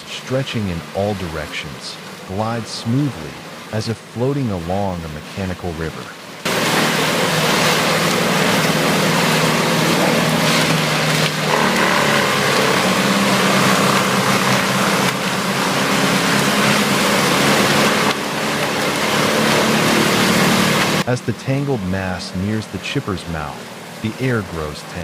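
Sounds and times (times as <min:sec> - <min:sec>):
engine drone: 0:00.0 - 0:25.0
wood chipper grinding: 0:06.4 - 0:21.1.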